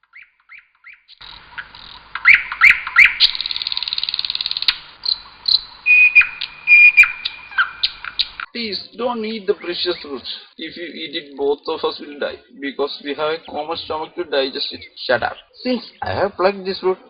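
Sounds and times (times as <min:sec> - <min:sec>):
birds chirping: 0:00.0 - 0:17.0
whistled bird note: 0:05.1 - 0:08.5.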